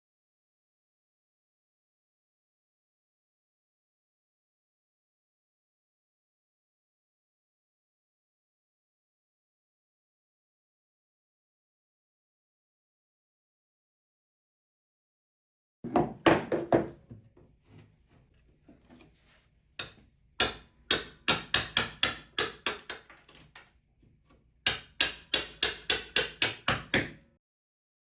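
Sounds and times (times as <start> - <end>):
hammer striking chisel into wood: 19.8 - 23.2, 24.6 - 27.2.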